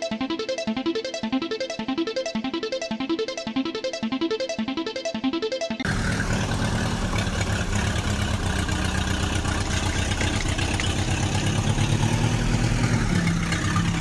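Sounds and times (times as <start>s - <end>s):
heavy vehicle engine throbbing: 5.9s - 14.0s.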